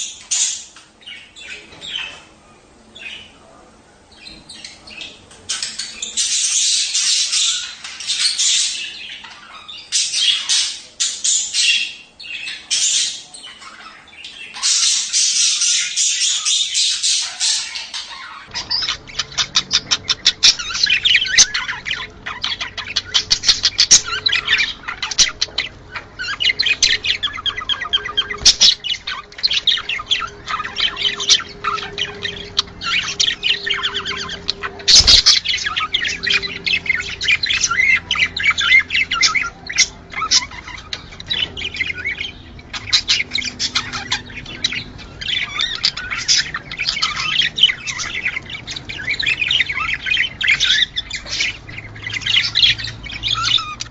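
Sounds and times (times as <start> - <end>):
budgerigars chattering: 0.0 - 53.9.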